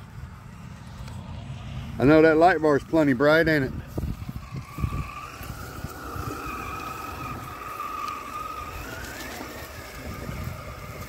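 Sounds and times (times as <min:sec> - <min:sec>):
electric motor whining: 0:03.8 - 0:11.0
tyres rustling over dry leaves: 0:03.9 - 0:11.0.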